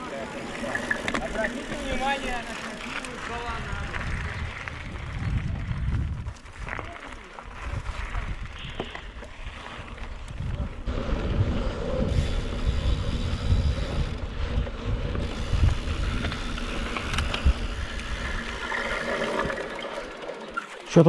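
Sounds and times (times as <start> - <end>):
wind buffeting microphone: 3.2 - 19.7.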